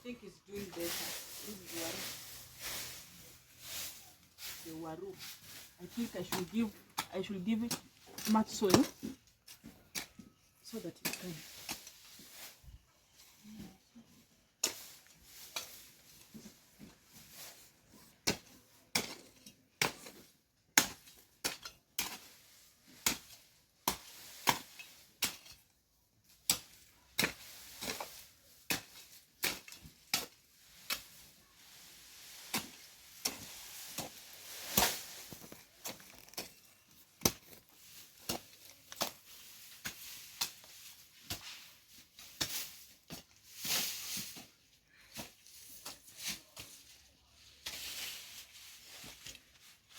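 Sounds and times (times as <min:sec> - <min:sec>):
soil being dragged: 0:00.2 - 0:12.8, 0:14.5 - 0:49.9
hoe chopping into soil: 0:18.2 - 0:25.6, 0:26.4 - 0:31.3, 0:32.5 - 0:36.6, 0:37.2 - 0:44.5.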